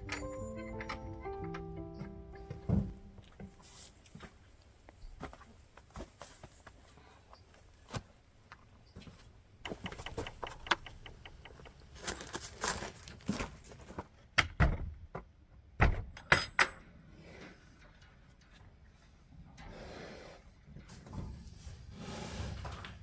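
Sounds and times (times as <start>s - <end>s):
clinks and rattles of small objects: 0.0s - 1.7s
ringing clinks: 0.0s - 2.1s
heavy thumps: 1.0s - 3.6s.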